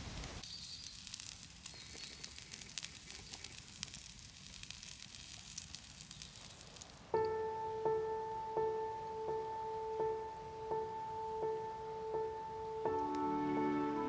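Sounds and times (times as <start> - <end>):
small pops: 0.0 - 7.4
wood fire crackling: 0.0 - 7.6.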